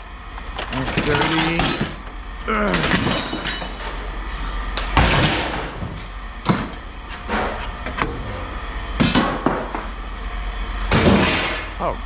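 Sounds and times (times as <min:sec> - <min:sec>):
steady low hum: 0:00.0 - 0:12.0
scrap metal clattering into bins: 0:00.7 - 0:02.0, 0:02.7 - 0:04.0.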